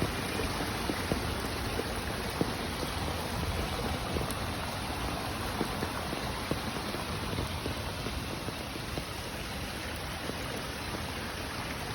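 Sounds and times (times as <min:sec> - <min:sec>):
small water splashes: 0:00.0 - 0:11.9
stream water babbling: 0:00.0 - 0:11.9.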